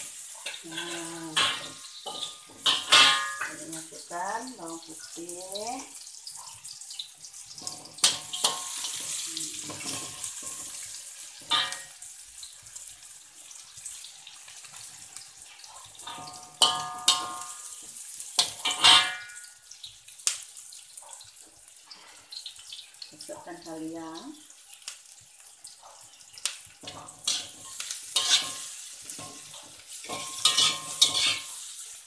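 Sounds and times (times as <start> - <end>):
metal spatula scraping a wok: 0.0 - 3.8, 7.3 - 12.1, 14.6 - 19.4, 26.8 - 32.0
shallots sizzling in hot oil: 0.0 - 32.0.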